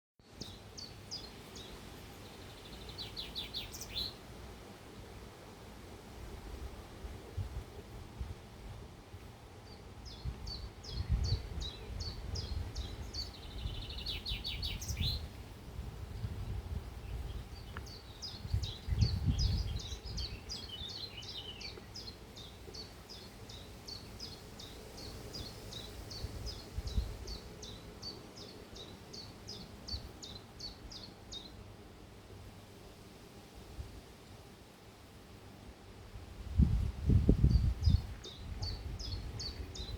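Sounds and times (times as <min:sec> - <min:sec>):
bird chirping: 0:00.4 - 0:04.2, 0:09.6 - 0:15.3, 0:17.0 - 0:31.6
low rumbling on microphone: 0:10.1 - 0:21.0, 0:36.5 - 0:39.9.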